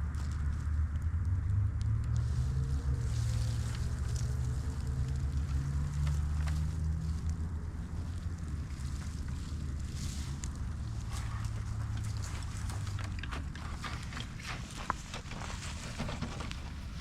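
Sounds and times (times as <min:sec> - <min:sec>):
campfire crackling and popping: 0:03.6 - 0:17.0.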